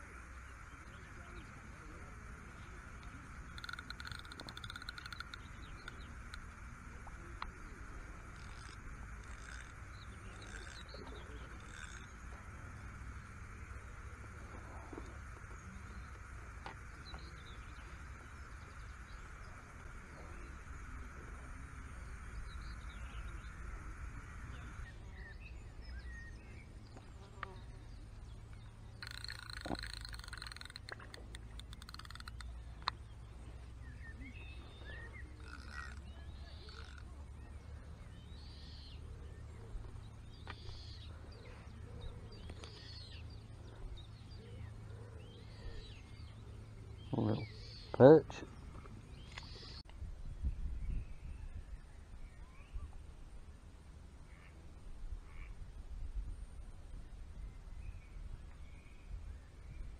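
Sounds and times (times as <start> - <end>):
steady hiss: 0.0 - 32.7
low steady rumble: 0.0 - 59.9
short bird calls: 2.6 - 13.9, 33.8 - 39.7
fishing tackle clicking: 3.5 - 6.5, 29.0 - 33.0.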